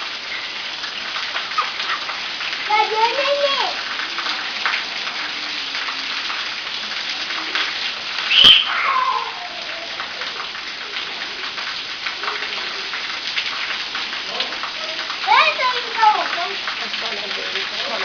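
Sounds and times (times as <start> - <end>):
shower water spraying: 0.0 - 18.0
baby squealing: 8.3 - 10.0.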